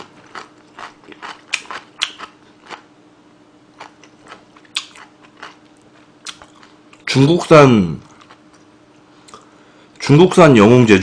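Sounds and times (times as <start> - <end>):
chewing noodles: 0.0 - 2.9, 3.7 - 7.1, 8.0 - 8.7
wet mouth smacks and clicks: 1.5 - 2.3.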